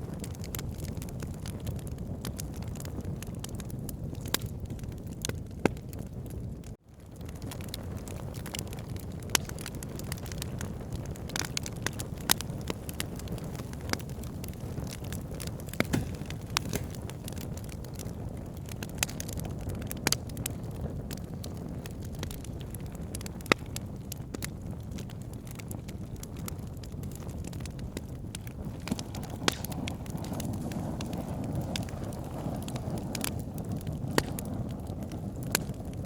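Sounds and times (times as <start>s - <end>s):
firewood crackling and popping: 0.0s - 36.0s
low rush of flames: 0.0s - 36.0s.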